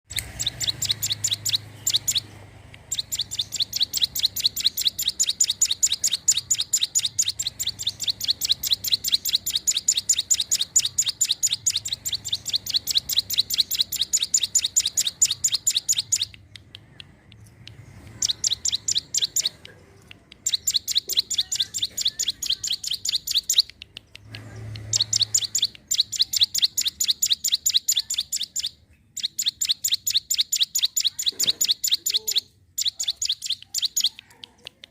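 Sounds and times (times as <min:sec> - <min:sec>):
bird rapid high chirps: 0:00.1 - 0:34.9.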